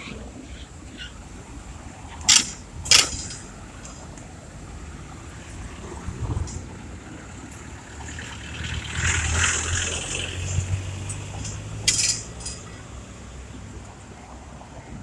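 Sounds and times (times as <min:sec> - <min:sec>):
motor vehicle passing: 0:00.0 - 0:15.0
sharp clink: 0:02.3 - 0:03.6, 0:11.4 - 0:12.8.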